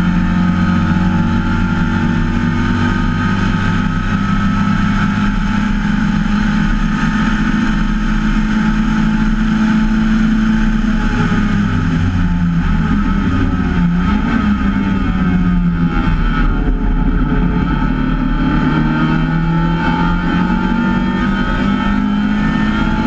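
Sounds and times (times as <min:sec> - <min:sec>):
race car engine at high revs: 0:00.0 - 0:23.0.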